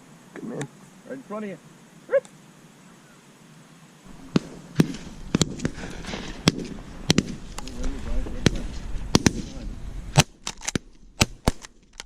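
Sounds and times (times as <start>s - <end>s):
shotguns firing: 4.1s - 11.8s.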